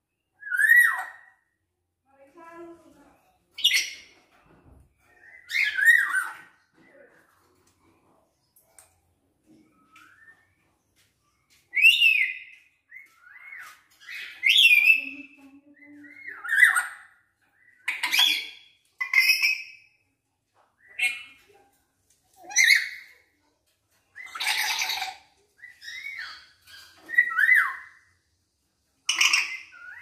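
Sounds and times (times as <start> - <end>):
bird harsh squawks: 24.2 - 25.2.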